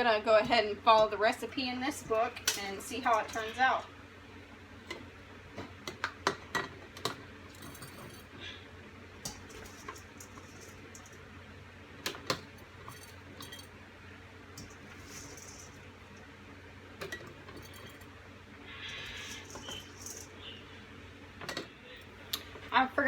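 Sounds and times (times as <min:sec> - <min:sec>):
glass jars and utensils clinking: 0:01.9 - 0:03.8, 0:06.5 - 0:08.3, 0:12.8 - 0:13.7, 0:17.0 - 0:18.1, 0:19.0 - 0:20.3.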